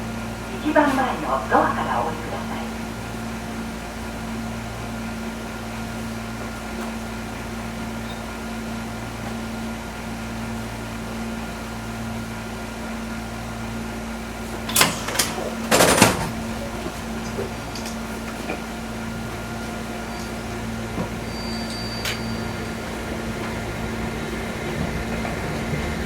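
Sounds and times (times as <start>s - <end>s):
electric railcar hum: 0.0s - 26.0s.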